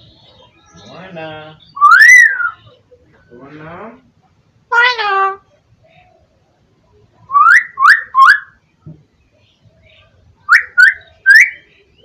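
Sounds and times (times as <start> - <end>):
myna bird rising whistles: 1.8 - 2.6.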